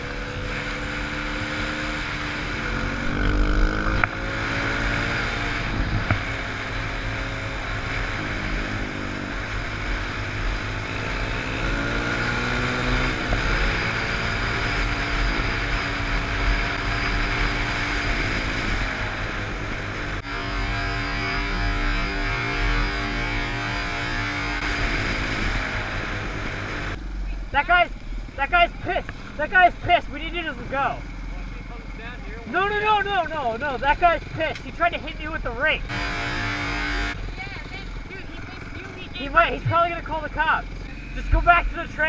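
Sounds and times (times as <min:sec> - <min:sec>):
dirt bike engine revving: 0:00.0 - 0:42.0
wind noise on microphone: 0:05.5 - 0:06.5.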